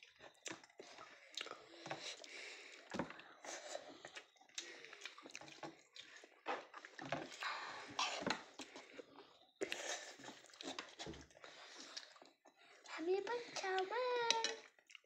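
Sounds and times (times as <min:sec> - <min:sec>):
mouth noise of chewing porridge: 0:00.0 - 0:15.0.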